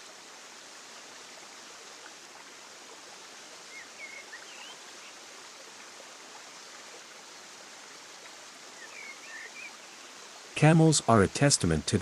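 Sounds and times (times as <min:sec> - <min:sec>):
rushing outdoor ambience: 0:10.5 - 0:12.0.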